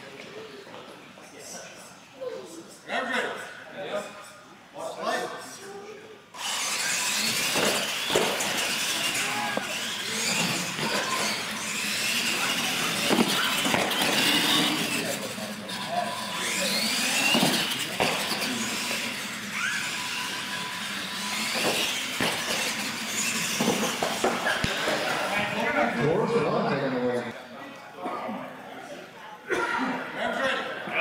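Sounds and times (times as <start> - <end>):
onlookers' voices: 5.0 - 31.0
toy truck motors whining: 6.3 - 26.0
tyres squealing: 6.4 - 25.4.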